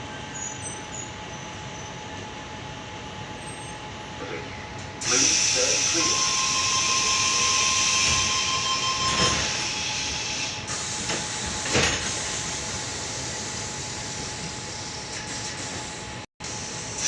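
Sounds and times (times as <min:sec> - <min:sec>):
electric train interior hiss: 0:04.2 - 0:17.0.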